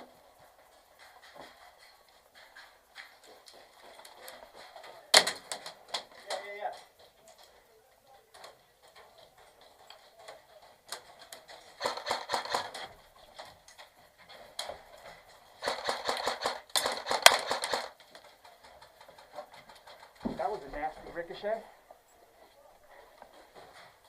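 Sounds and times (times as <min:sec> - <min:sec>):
airsoft guns firing bursts: 0:11.8 - 0:12.9, 0:15.6 - 0:18.0.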